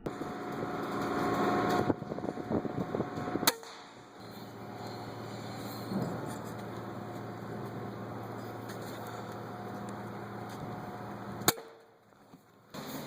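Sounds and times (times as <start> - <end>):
wind noise: 0.0 - 11.4
low machine-like hum: 0.0 - 13.0
sharp crack: 3.1 - 5.2, 11.4 - 11.9.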